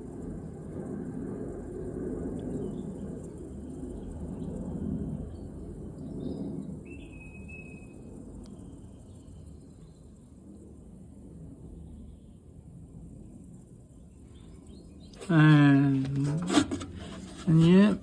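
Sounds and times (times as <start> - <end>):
condenser fan humming: 15.2 - 18.0.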